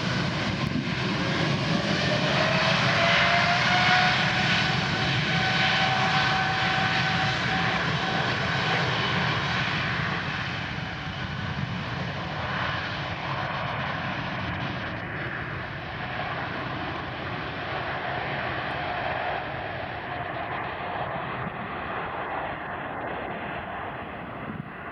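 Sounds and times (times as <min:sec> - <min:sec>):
jet engines roaring: 0:00.0 - 0:24.9.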